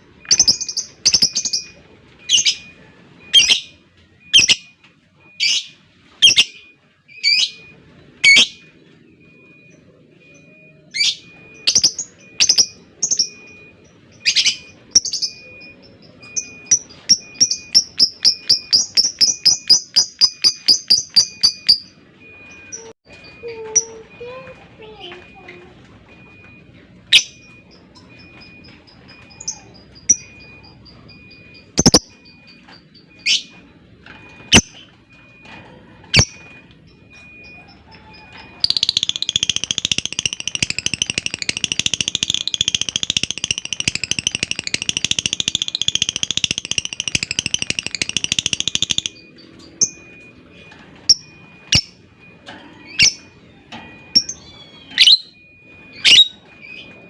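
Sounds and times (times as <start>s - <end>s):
lovebird chirps: 0.2s - 2.7s, 3.3s - 4.7s, 5.4s - 8.6s, 28.7s - 32.4s, 37.4s - 50.1s
lovebird chattering trill: 31.8s - 32.1s, 38.6s - 49.2s.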